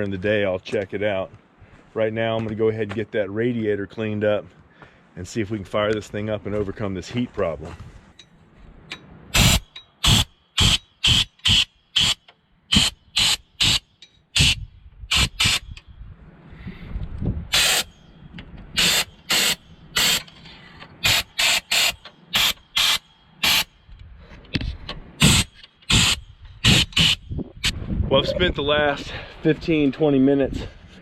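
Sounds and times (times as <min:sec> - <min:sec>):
compressed-air blow gun blasts: 0:09.3 - 0:15.8, 0:17.5 - 0:17.9, 0:18.8 - 0:20.3, 0:21.0 - 0:23.8, 0:25.2 - 0:27.8.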